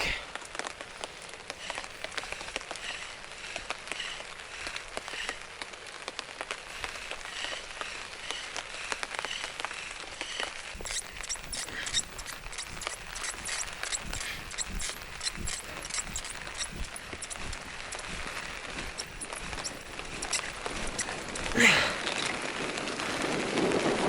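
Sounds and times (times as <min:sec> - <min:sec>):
rain falling: 0:00.0 - 0:10.8, 0:21.2 - 0:24.0
drops ticking: 0:10.8 - 0:22.2.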